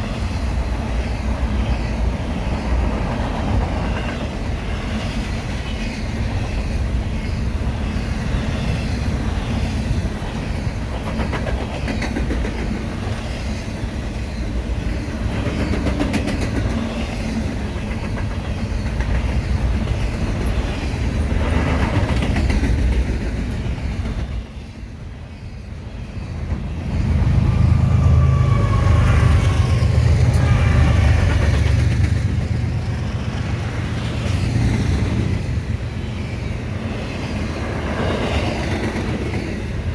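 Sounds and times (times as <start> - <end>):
freight train rolling past: 0.0 - 39.9
wheels clicking over rail joints: 15.1 - 24.9.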